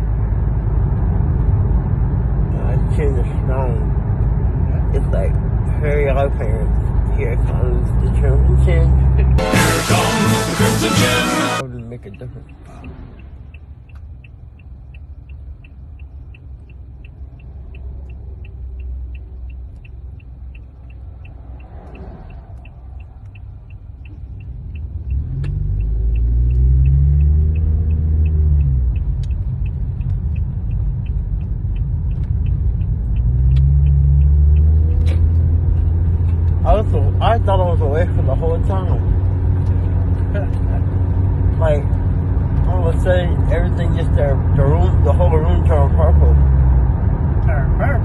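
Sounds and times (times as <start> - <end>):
car engine: 0.0 - 48.0
road rumble: 0.0 - 48.0.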